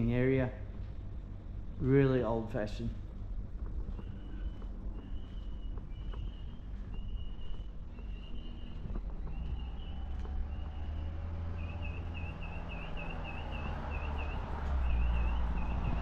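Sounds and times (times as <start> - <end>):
traffic rumble: 0.0 - 16.0
wind: 0.0 - 16.0
small bird calling: 3.7 - 16.0.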